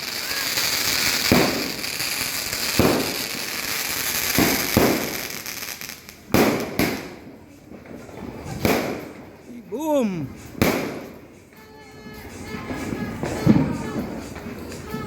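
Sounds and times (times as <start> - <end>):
fireworks bangs: 0.0 - 7.2
fireworks crackle: 0.0 - 7.3.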